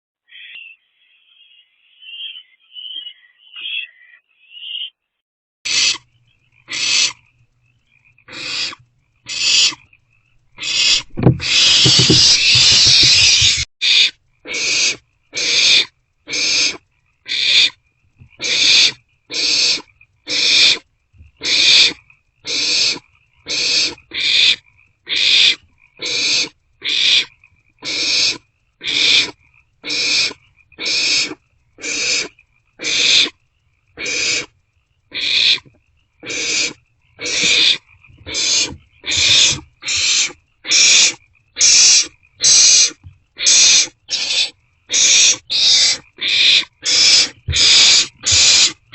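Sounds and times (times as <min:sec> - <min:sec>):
owlets hissing begging calls: 0:05.7 - 0:06.1, 0:06.7 - 0:07.2, 0:08.3 - 0:09.8, 0:10.6 - 0:17.8, 0:18.4 - 0:20.8, 0:21.4 - 0:33.4, 0:34.0 - 0:34.5, 0:35.1 - 0:35.6, 0:36.2 - 0:48.9.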